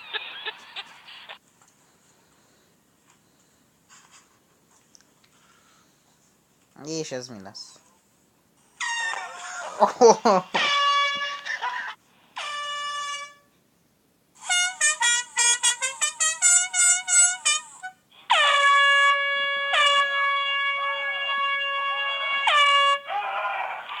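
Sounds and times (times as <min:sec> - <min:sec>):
air horn blasting: 0:08.8 - 0:09.2, 0:10.6 - 0:11.5, 0:12.4 - 0:13.5, 0:14.4 - 0:23.2.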